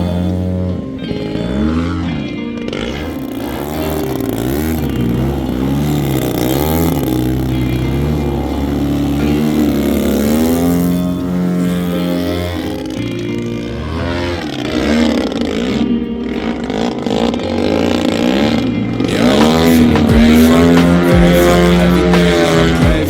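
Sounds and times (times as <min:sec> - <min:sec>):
model plane engine running: 0:00.0 - 0:15.7
background music: 0:00.0 - 0:23.0.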